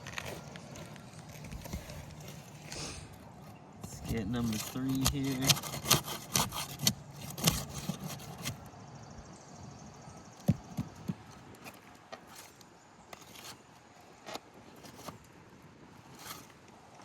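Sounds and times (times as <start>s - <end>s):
metal bar scraping shingles: 3.8s - 8.6s, 11.6s - 15.3s, 16.0s - 17.0s.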